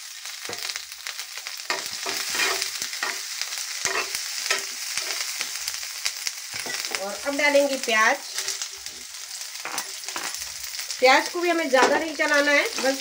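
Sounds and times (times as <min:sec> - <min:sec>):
food sizzling in hot oil: 0:00.0 - 0:13.0
metal spoon scraping pan: 0:01.7 - 0:05.4.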